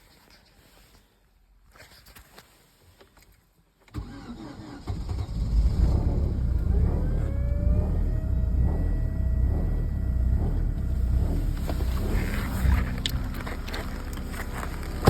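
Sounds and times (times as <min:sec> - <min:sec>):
car engine starting and running: 0:03.9 - 0:15.0
rising whine: 0:05.9 - 0:14.2.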